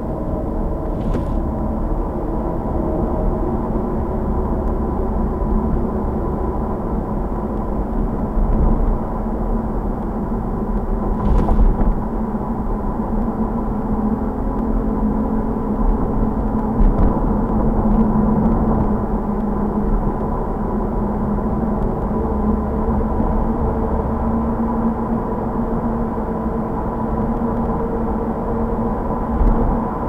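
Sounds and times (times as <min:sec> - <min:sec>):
car engine and tyre noise: 0:00.0 - 0:03.4, 0:04.0 - 0:13.0.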